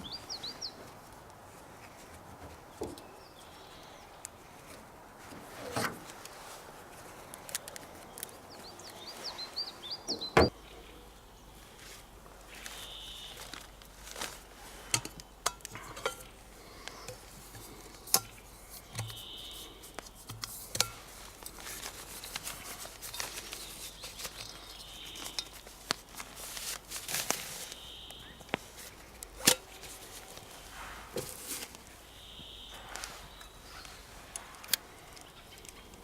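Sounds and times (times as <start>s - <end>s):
crinkling and rustling: 4.2s - 9.6s, 11.6s - 32.1s
bird short high call: 12.8s - 13.5s, 32.1s - 33.9s
handling clicks and knocks: 14.9s - 19.3s.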